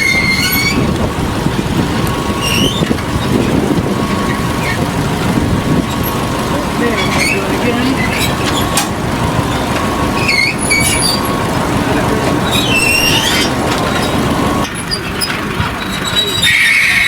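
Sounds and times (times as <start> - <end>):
short high-pitched squeaks: 0.0 - 0.9, 2.4 - 3.4, 6.8 - 8.8, 9.5 - 11.4, 12.4 - 17.0
steady hum: 0.0 - 14.7
loud machinery running: 0.0 - 17.0.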